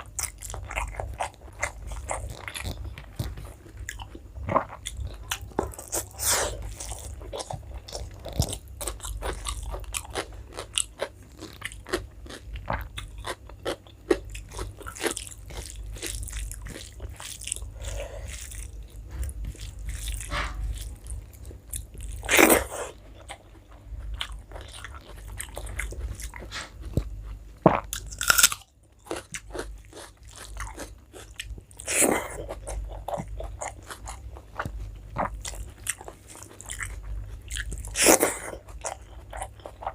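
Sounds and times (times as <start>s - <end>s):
person chewing food: 0.0s - 39.9s
crunchy bites: 26.9s - 34.1s.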